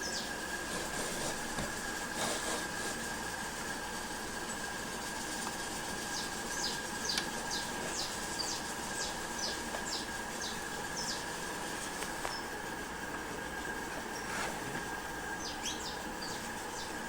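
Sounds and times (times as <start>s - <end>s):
small bird chirping: 0.0s - 0.4s, 6.1s - 11.4s, 12.1s - 12.6s, 15.3s - 17.0s
steady hiss: 0.0s - 17.0s.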